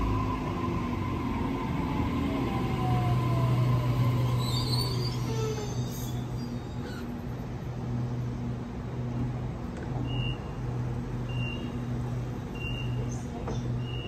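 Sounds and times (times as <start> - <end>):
electric train humming: 0.0 - 13.8
short high door beeps: 10.0 - 10.5, 11.3 - 11.8, 12.6 - 13.0.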